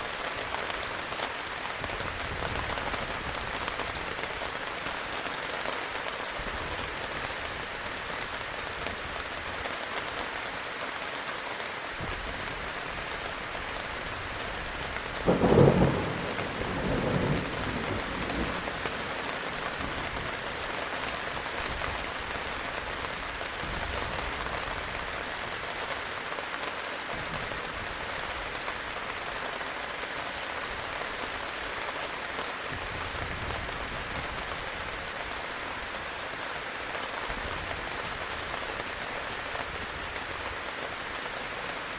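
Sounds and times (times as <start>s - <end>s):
heavy rain: 0.0s - 41.9s
thunderclap: 15.3s - 19.0s.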